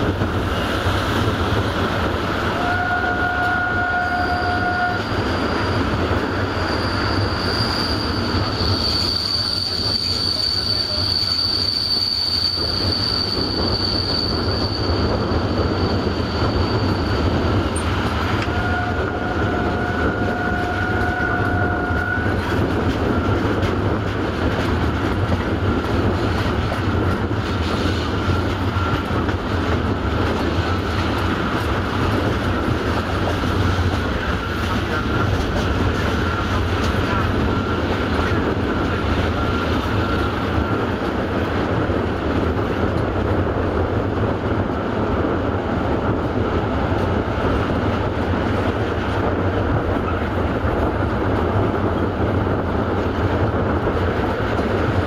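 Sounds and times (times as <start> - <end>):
train wheels rumbling on rail: 0.0 - 55.0
high wheel squeal: 0.5 - 24.7, 25.3 - 40.9
low wheel squealing tone: 2.4 - 23.8.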